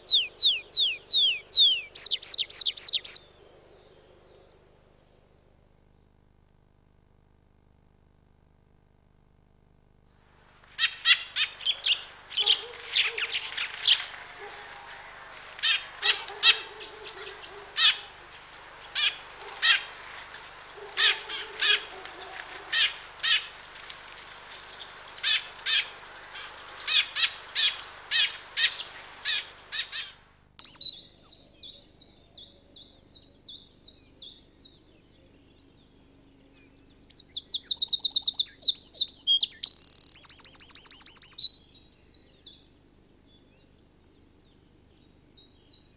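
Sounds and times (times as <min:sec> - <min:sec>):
birds singing short sharp calls: 0:00.0 - 0:05.5, 0:10.8 - 0:45.9
rapid trilling birdsong: 0:00.0 - 0:05.6, 0:10.8 - 0:45.9
quick high bird chirps: 0:00.1 - 0:03.2, 0:26.8 - 0:31.3.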